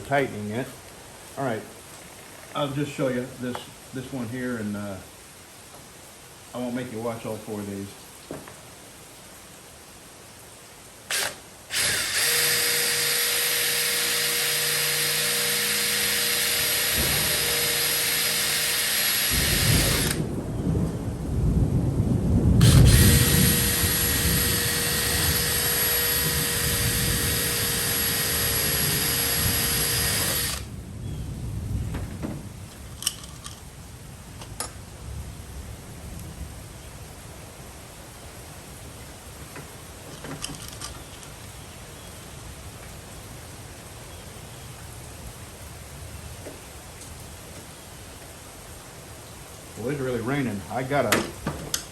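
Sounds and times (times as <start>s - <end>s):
power drill drilling into wood: 11.1s - 20.2s, 22.6s - 30.7s.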